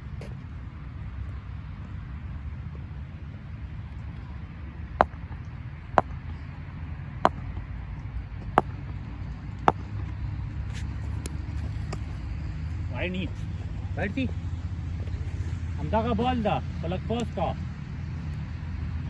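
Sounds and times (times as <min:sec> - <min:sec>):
steady low rumble: 0:00.0 - 0:19.0
sharp knocks: 0:07.3 - 0:07.5.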